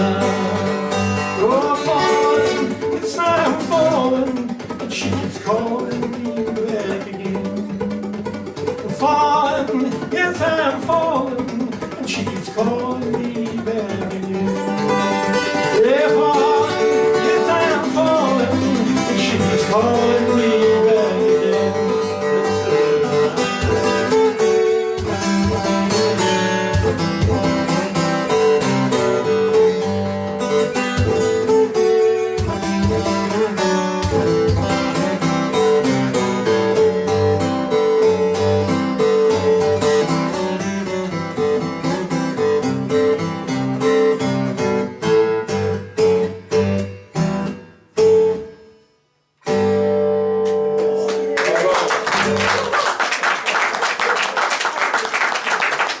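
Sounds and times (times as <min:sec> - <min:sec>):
person singing wordlessly: 0:00.0 - 0:07.7, 0:08.9 - 0:14.6, 0:15.6 - 0:24.2
acoustic guitar playing: 0:00.0 - 0:56.0.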